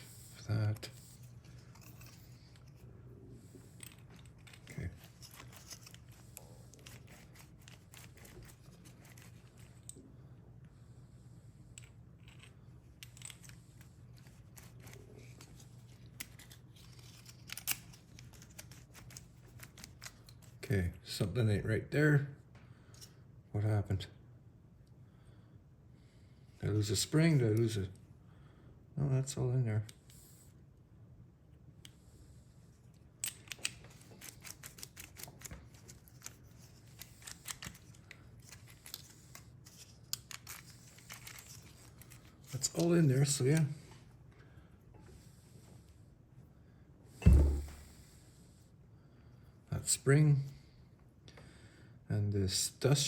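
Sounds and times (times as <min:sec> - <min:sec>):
steady low hum: 0:00.0 - 0:52.9
small metal lock parts clicking: 0:11.8 - 0:13.6, 0:33.2 - 0:39.1.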